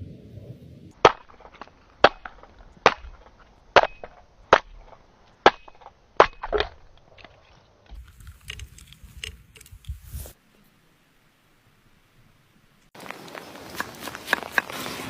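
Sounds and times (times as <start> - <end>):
sharp chopping strikes: 1.0 - 7.0.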